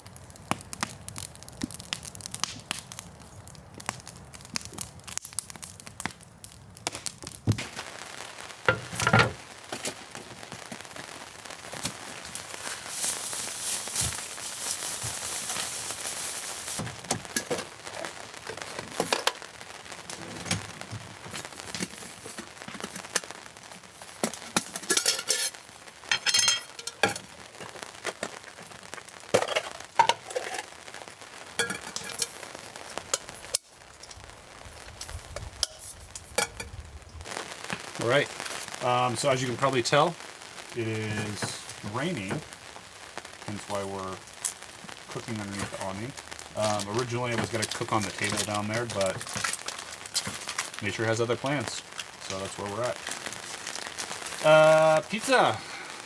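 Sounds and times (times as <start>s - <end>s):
steady hiss: 7.2s - 56.0s
packaging crinkling: 8.8s - 33.5s, 40.4s - 56.0s
cooking gear clinking: 24.8s - 25.5s, 26.1s - 27.3s.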